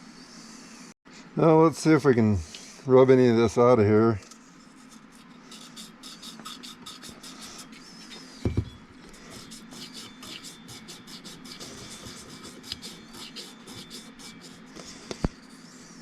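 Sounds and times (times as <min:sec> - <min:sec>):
scratchy hand-rubbing strokes: 0:04.4 - 0:16.0.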